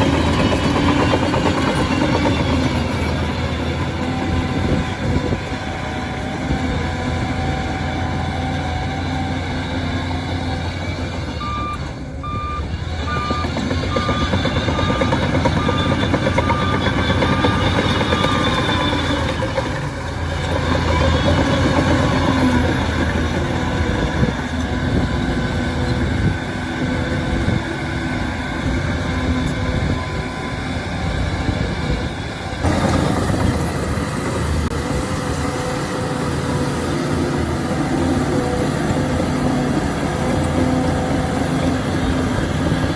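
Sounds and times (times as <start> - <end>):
bulldozer diesel engine running: 0.0 - 42.9
reversing alarm beeping: 0.0 - 42.9.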